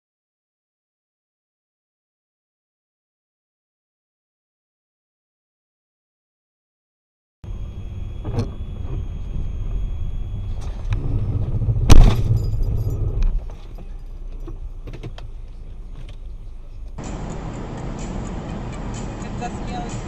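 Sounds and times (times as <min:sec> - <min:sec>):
car road and engine rumble: 0:07.4 - 0:20.0
loud collision bang: 0:11.6 - 0:13.1.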